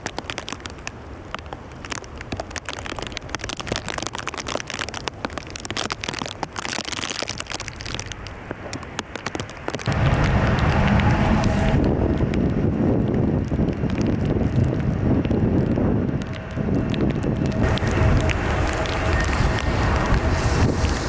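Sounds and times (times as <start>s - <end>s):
raindrops ticking: 0.0s - 21.0s
low background rumble: 9.8s - 21.0s.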